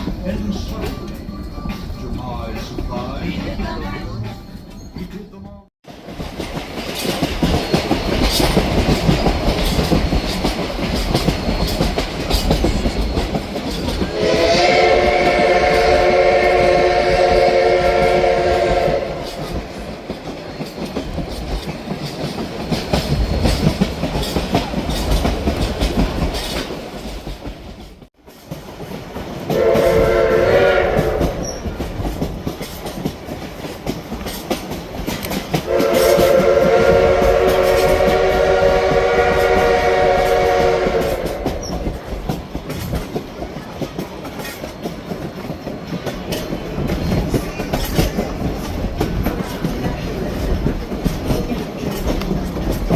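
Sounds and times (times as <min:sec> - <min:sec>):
train rumbling on track: 0:00.0 - 0:52.9
steam locomotive chime whistle: 0:14.0 - 0:19.8, 0:29.5 - 0:31.8, 0:35.7 - 0:41.9.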